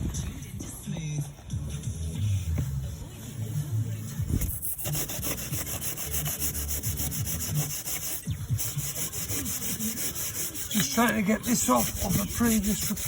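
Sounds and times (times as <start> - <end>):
scraping mortar off brick: 4.3 - 13.0.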